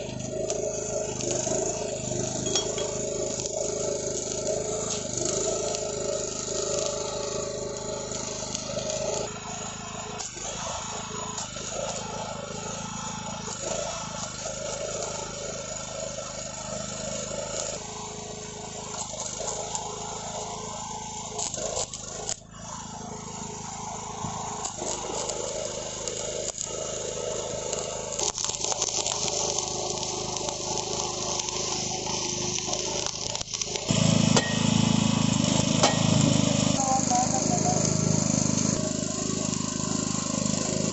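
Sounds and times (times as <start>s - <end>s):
arc welding crackling sizzle: 0.0s - 40.9s.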